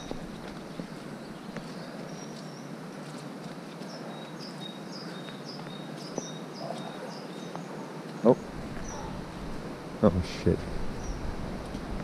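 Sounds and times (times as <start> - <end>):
small bird singing: 0.0 - 3.2, 3.8 - 9.2, 10.9 - 11.3
steady outdoor hiss: 0.0 - 12.0.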